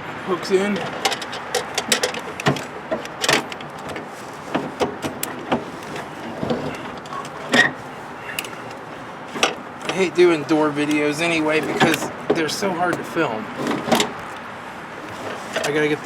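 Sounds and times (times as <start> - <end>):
door lock parts clicking and knocking: 0.8 - 7.8, 10.9 - 14.4.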